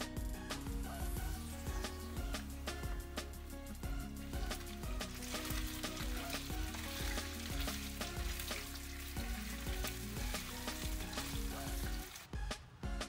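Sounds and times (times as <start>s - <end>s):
background music with steady beat: 0.0s - 13.0s
chicken sizzling in hot oil: 3.9s - 12.3s.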